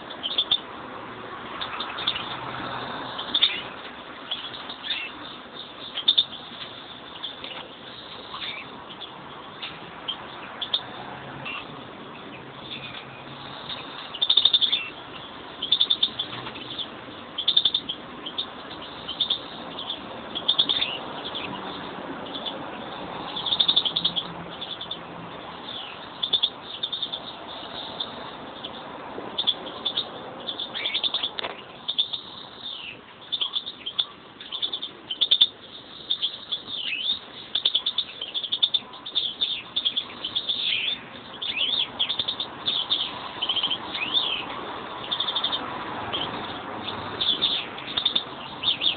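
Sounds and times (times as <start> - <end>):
finches chirping and twittering: 0.0 - 0.8, 1.5 - 48.9.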